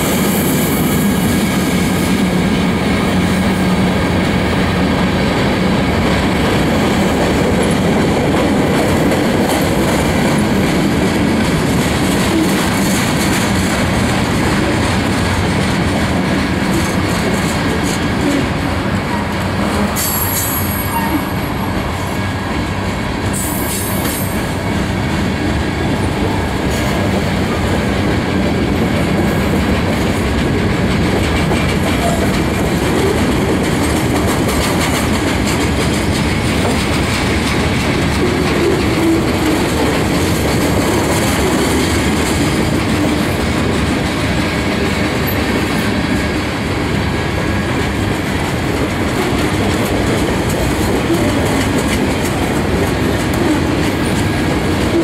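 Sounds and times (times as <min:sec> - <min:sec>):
clickety-clack over rail joints: 0:00.0 - 0:55.0
train wheels rumbling on rails: 0:00.0 - 0:55.0
high-pitched wheel squeals: 0:20.0 - 0:21.7.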